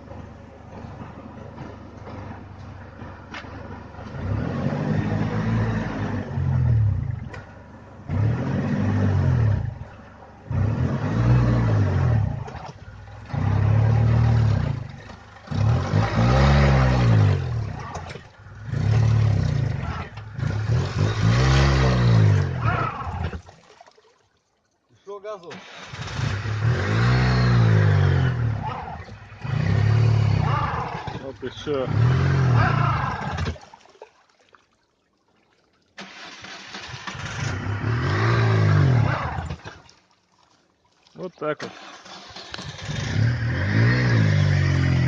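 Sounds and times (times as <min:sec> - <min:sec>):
engine revving hard: 0:04.0 - 0:07.0, 0:08.1 - 0:09.8, 0:10.5 - 0:12.5, 0:13.2 - 0:23.4, 0:25.6 - 0:33.6, 0:36.0 - 0:39.7, 0:41.6 - 0:45.0.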